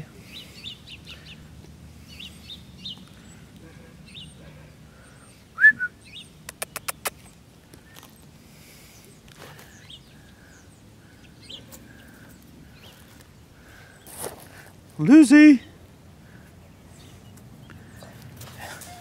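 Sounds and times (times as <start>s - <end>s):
small birds chirping: 0.0s - 19.0s
sharp clicks: 6.4s - 7.3s.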